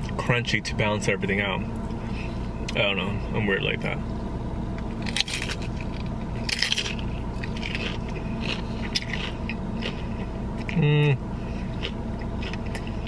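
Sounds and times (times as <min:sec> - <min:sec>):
steady low hum: 0:00.0 - 0:13.0
chewing crunchy fried food: 0:05.0 - 0:13.0.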